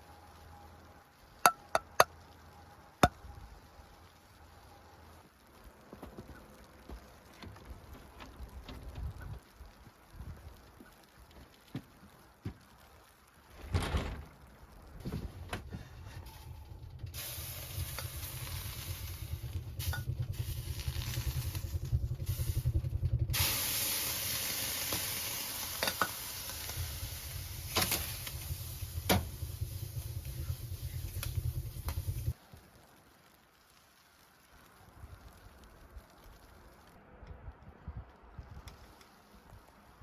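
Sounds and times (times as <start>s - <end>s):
low rumble: 14.8s - 32.4s
hissing and sizzling: 16.0s - 37.2s.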